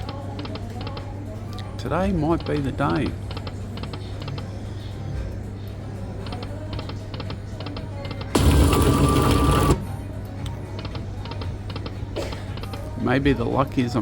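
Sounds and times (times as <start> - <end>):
poker machine reel-spin sounds: 8.4 - 9.8.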